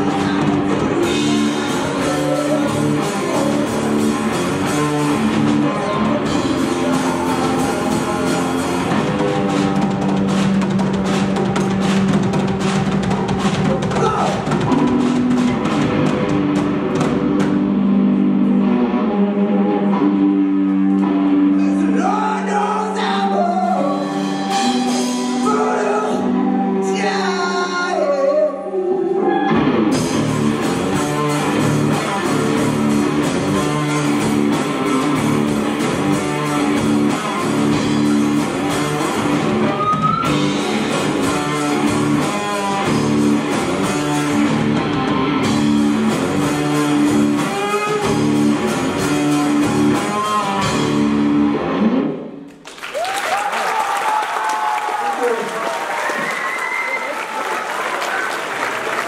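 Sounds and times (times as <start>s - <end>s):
bending electric guitar lines: 0.0s - 22.2s, 22.9s - 52.5s
live rock band playing: 0.0s - 28.2s, 29.1s - 52.5s.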